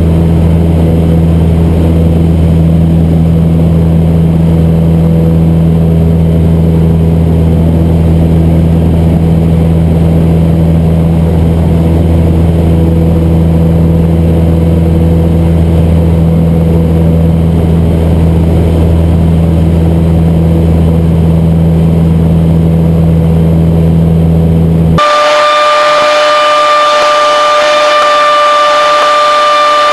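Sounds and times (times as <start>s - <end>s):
plane engine and propeller: 0.0s - 29.9s
steady high tone: 25.0s - 29.9s.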